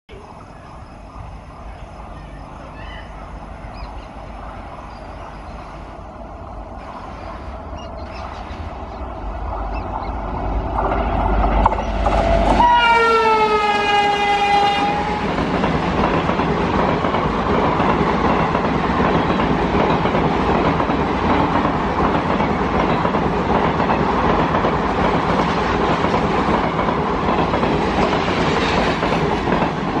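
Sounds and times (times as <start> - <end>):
train running noise: 0.1 - 30.0
locomotive horn blast: 12.1 - 15.4.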